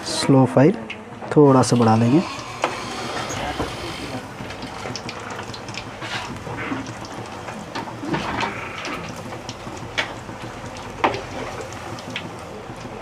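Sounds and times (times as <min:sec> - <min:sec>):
chicken sizzling in hot oil: 0:01.9 - 0:13.0
oil crackles and pops: 0:04.2 - 0:13.0.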